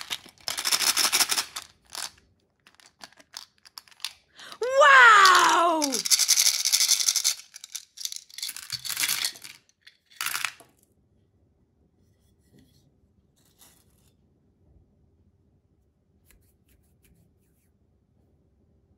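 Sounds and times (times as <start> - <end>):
candies rattling into plastic tubs: 0.0 - 10.7.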